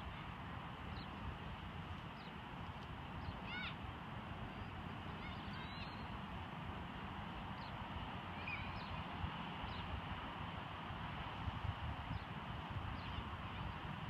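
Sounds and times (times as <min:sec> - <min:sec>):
outdoor background noise: 0:00.0 - 0:14.0
bird calls: 0:04.5 - 0:06.2, 0:07.5 - 0:09.9.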